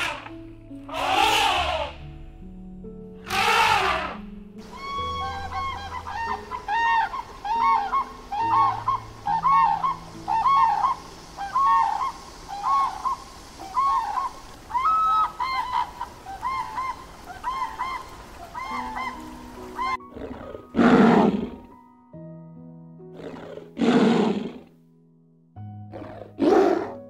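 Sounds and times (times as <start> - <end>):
cranes honking calls: 0.0 - 2.0, 3.2 - 21.6.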